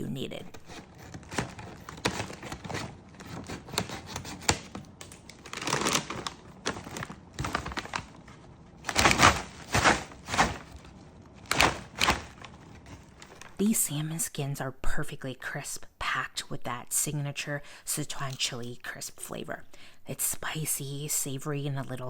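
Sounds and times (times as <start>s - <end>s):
plastic snack bag crinkling: 0.6s - 13.7s.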